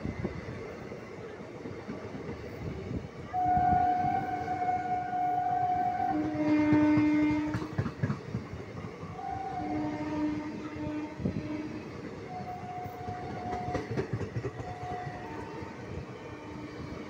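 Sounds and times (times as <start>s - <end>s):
train wheels rumbling and clattering: 0.0s - 17.0s
locomotive horn: 3.3s - 7.7s, 9.2s - 14.0s, 14.6s - 16.8s.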